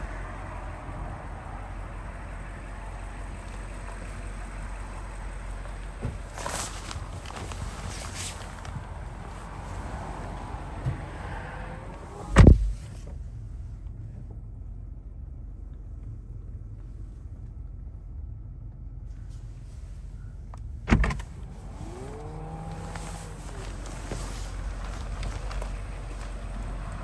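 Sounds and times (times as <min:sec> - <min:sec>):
outside noise: 0:00.0 - 0:27.0
car door thud: 0:10.7 - 0:13.0, 0:20.9 - 0:21.4
electric motor whine: 0:21.7 - 0:23.6.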